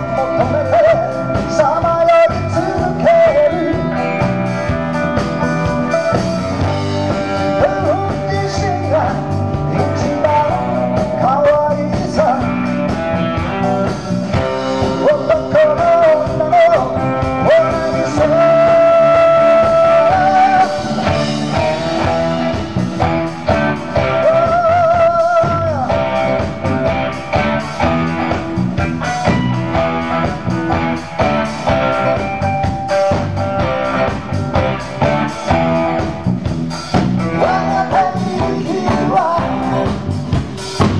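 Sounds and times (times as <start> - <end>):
live rock and roll band: 0.0 - 40.9
lead guitar bent held notes: 25.5 - 37.5.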